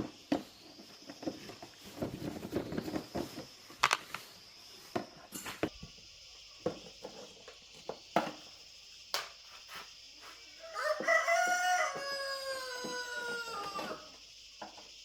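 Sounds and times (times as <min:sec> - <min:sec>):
rooster crowing: 0:10.5 - 0:14.2.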